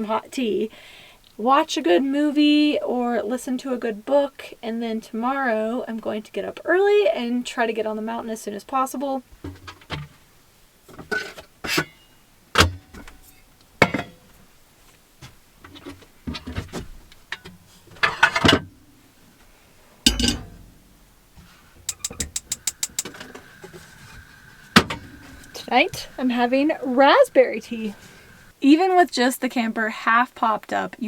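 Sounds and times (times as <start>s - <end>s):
items knocking and clattering: 9.4s - 10.2s, 12.6s - 14.4s, 15.2s - 18.9s, 20.1s - 26.2s
fast run of clicks: 21.9s - 23.9s.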